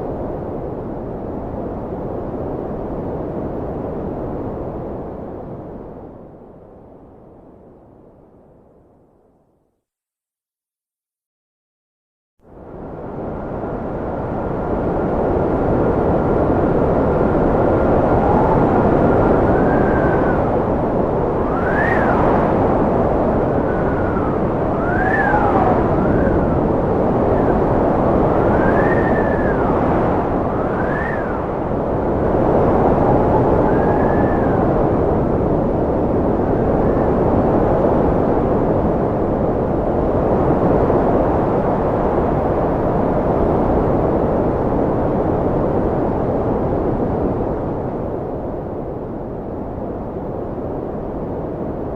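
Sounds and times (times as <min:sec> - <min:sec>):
strong wind blowing: 0:00.0 - 0:08.3, 0:12.4 - 0:51.9
faint wind whistle: 0:12.8 - 0:51.9.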